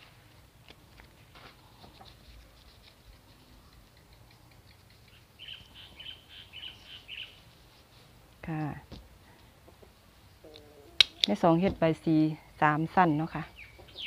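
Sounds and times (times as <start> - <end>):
small bird chirping: 3.3 - 7.5, 13.2 - 14.0.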